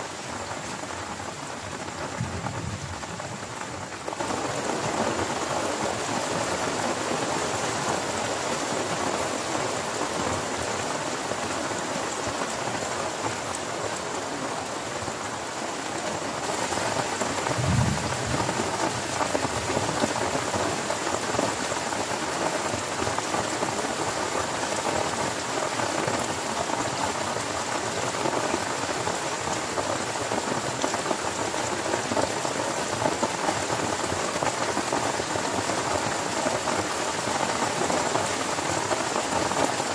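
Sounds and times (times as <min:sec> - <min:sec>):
heavy rain on a tent: 0:00.0 - 0:39.9
low thump: 0:17.5 - 0:18.6.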